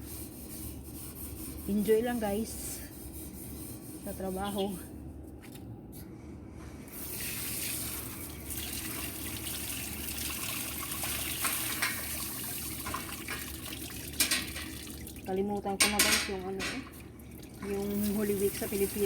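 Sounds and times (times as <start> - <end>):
tap water running into sink: 7.5 - 15.3.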